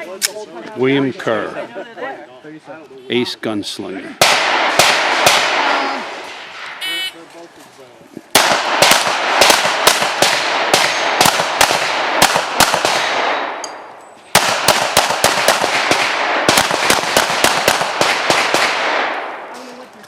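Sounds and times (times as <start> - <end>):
pistol shots with ringing tail: 4.2 - 6.9, 8.3 - 19.4.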